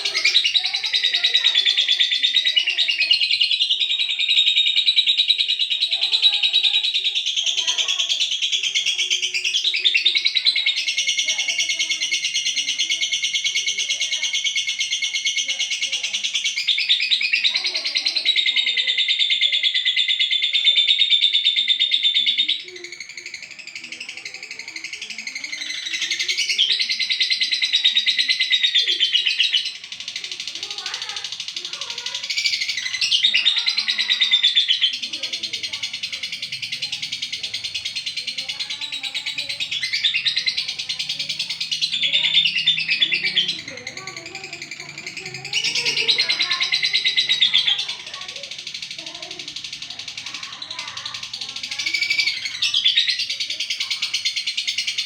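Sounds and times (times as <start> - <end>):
lovebird trilling: 0.0 - 55.0.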